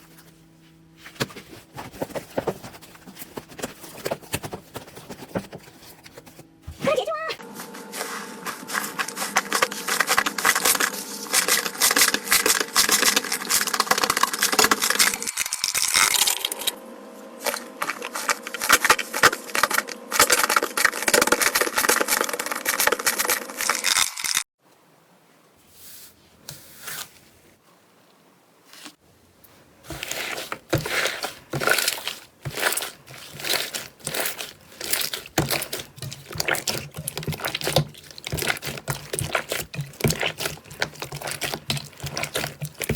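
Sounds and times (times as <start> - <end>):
slime crackling and popping: 30.7 - 42.9.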